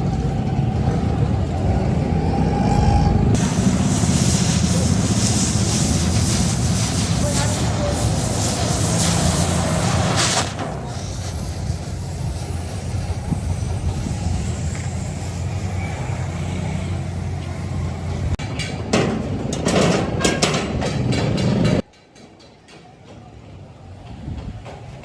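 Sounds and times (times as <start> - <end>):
workshop machinery hum: 3.3 - 18.4
rough clattering strokes: 3.4 - 18.4.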